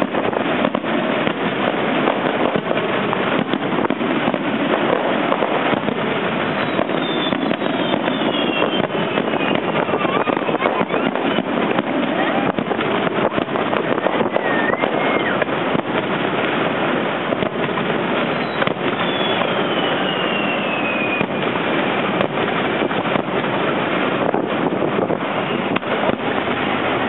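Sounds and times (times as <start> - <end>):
fireworks crackling and bangs: 0.0 - 27.0
falling whistle: 6.6 - 10.1, 14.3 - 15.4, 18.3 - 21.4.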